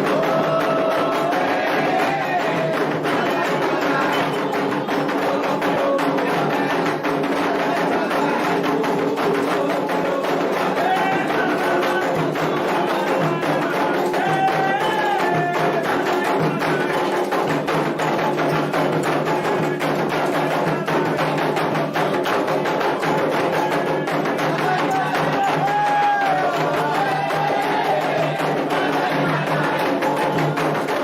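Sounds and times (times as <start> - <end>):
voices chanting: 0.0 - 17.2, 23.5 - 31.0
hand drums fast rhythm: 0.0 - 31.0.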